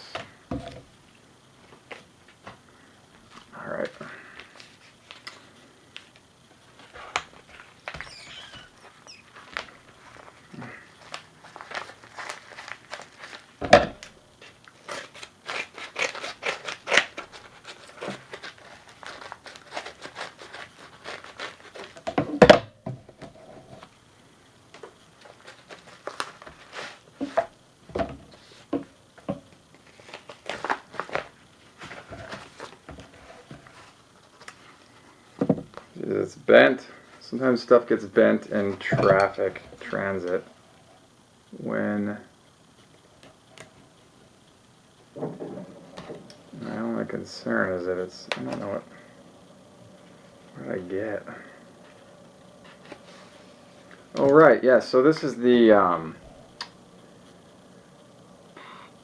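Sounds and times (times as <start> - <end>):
paper packaging rustling and tearing: 4.3 - 13.6, 14.4 - 22.0, 24.8 - 27.4, 29.7 - 35.2.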